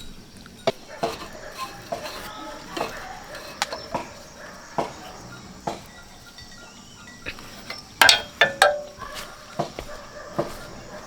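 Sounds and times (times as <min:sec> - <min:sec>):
metallic clinks of tools: 0:06.0 - 0:09.3.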